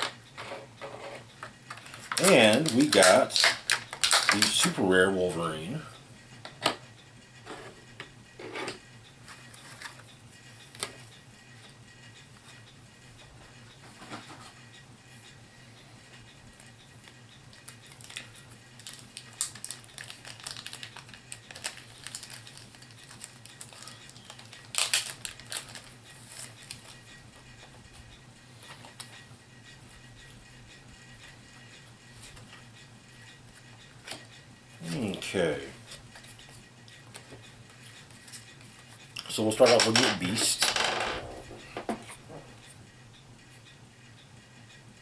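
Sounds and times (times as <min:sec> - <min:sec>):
low steady hum: 0:00.0 - 0:45.0
plastic pieces clicking: 0:01.7 - 0:04.7, 0:18.9 - 0:25.9.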